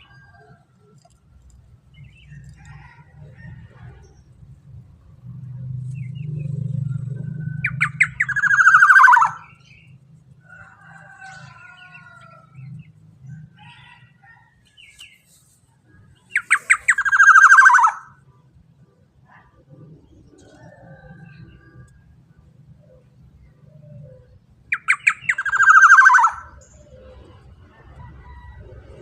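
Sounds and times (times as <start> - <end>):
birds chirping: 0.0 - 14.1, 15.9 - 28.7
bird harsh calls: 7.5 - 9.9, 16.2 - 18.2, 23.9 - 27.3.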